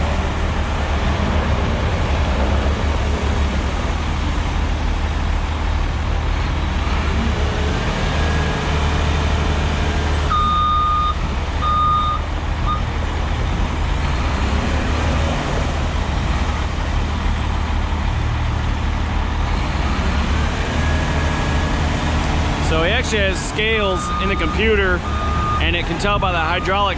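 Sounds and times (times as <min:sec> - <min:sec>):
heavy diesel engine running: 0:00.0 - 0:26.9
backup alarm beeping: 0:10.3 - 0:12.9, 0:24.0 - 0:25.8.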